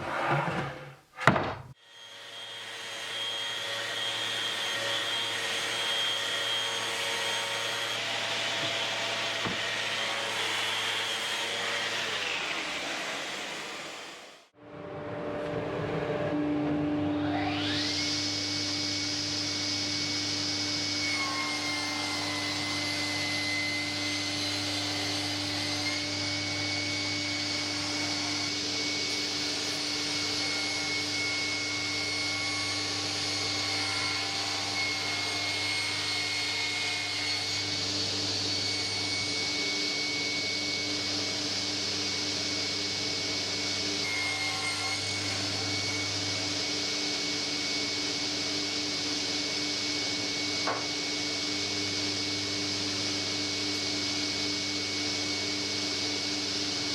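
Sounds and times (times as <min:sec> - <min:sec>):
power tool high whine: 0:16.3 - 0:56.9.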